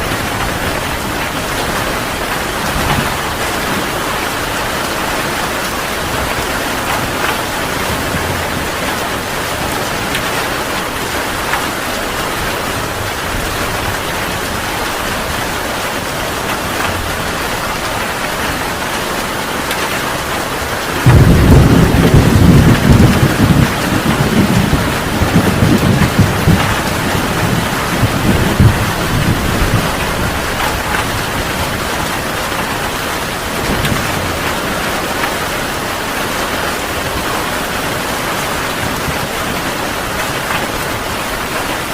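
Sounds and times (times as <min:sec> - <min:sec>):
thunder clap and rumbling: 0:00.0 - 0:17.6, 0:20.8 - 0:35.5
heavy rain falling: 0:00.0 - 0:41.9.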